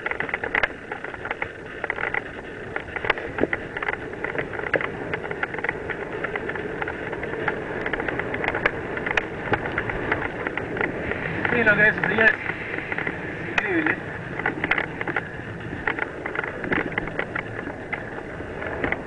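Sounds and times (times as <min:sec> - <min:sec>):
bike rattling over bumps: 0:00.0 - 0:19.0
bike tyres rushing on dirt: 0:00.0 - 0:19.0.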